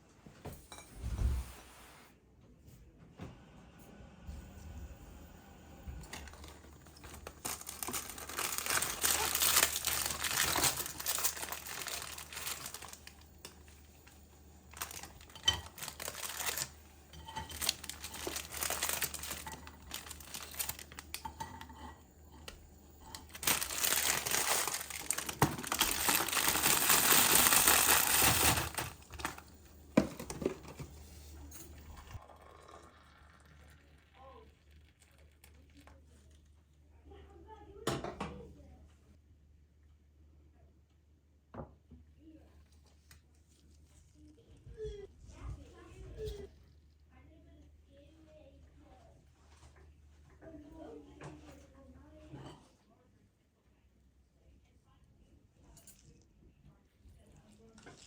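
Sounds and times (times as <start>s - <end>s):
packaging crinkling and rustling: 6.1s - 21.7s, 22.4s - 31.2s.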